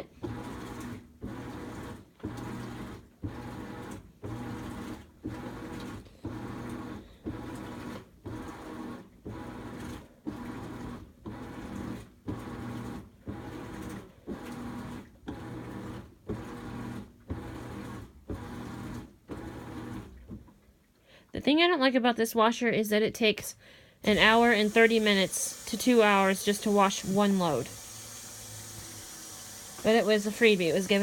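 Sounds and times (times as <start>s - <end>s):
washing machine agitating: 0.0s - 20.6s, 24.0s - 31.0s.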